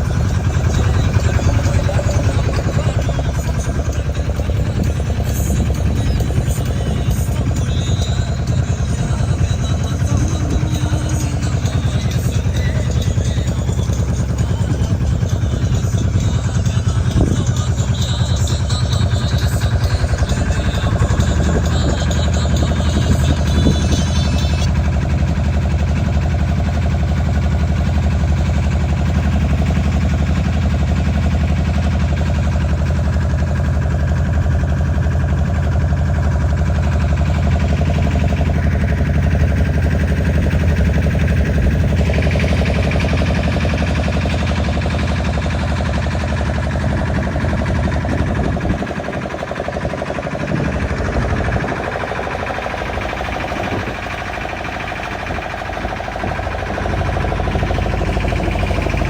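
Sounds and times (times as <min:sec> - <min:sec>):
boat engine humming: 0:00.0 - 0:59.0
wind noise: 0:46.9 - 0:49.4, 0:50.0 - 0:51.9.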